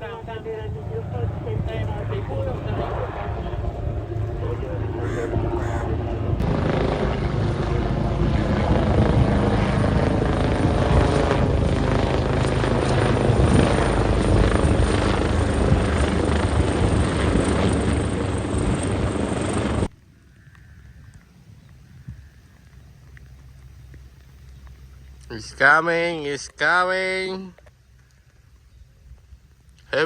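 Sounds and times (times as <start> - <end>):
helicopter rotor and turbine: 0.0 - 20.0.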